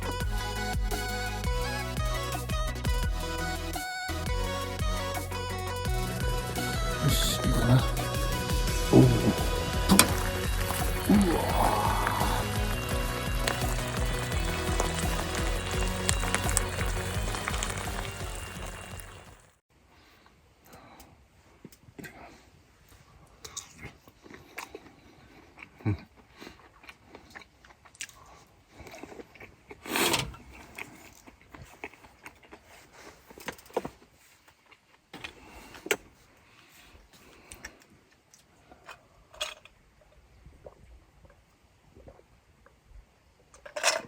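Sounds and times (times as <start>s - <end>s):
person chewing food: 7.5s - 19.2s, 23.3s - 36.0s.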